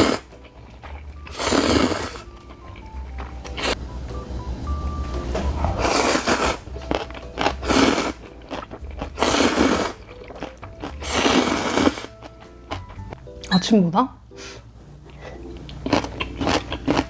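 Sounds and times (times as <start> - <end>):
person slurping and chewing noodles: 0.0 - 3.8, 5.5 - 13.1, 15.1 - 17.0.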